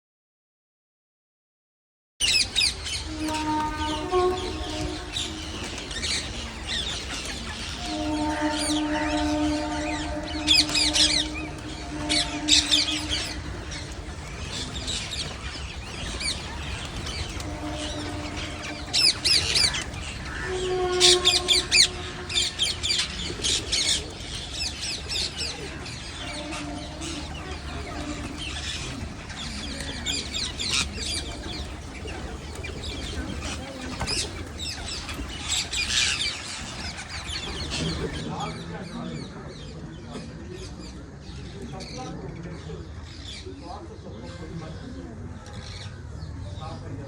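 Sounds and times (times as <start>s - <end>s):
parrots squawking: 2.2s - 38.2s.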